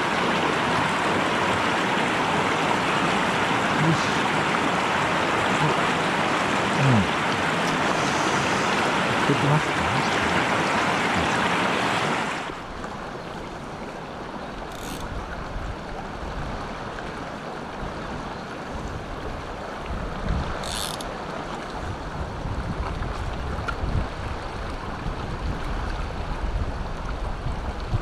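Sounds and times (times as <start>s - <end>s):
mountain stream water rushing: 0.0s - 28.0s
wind rumbling on microphone: 18.7s - 20.8s, 21.7s - 28.0s.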